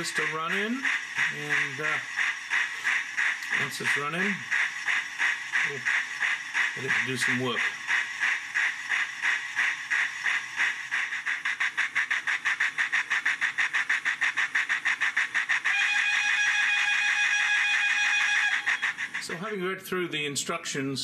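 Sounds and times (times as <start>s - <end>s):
steam exhaust chuffs from speaker: 0.0s - 20.2s
locomotive whistle: 15.7s - 19.0s.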